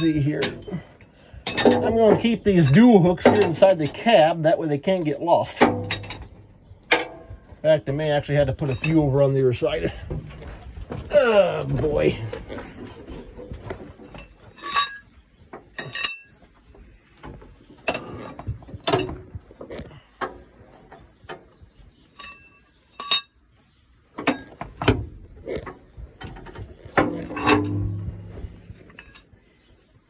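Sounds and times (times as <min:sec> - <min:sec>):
steel hooks clinking: 0:00.0 - 0:04.1, 0:05.5 - 0:07.3, 0:14.0 - 0:16.7, 0:22.1 - 0:23.5, 0:26.2 - 0:29.4.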